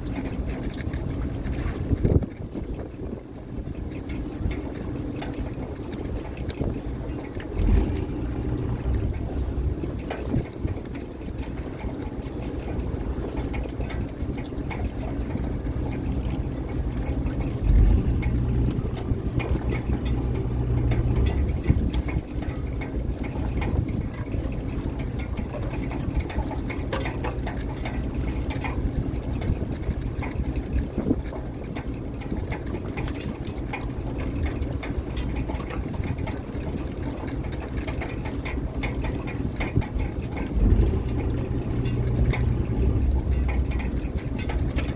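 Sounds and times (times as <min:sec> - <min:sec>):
boat engine droning: 0:00.0 - 0:44.9.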